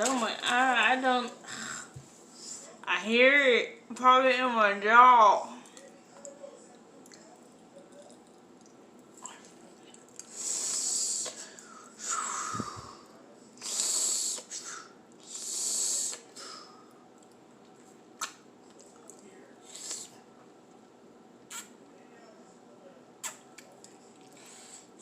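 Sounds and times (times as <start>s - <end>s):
person breathing hard through mouth: 10.3s - 16.8s.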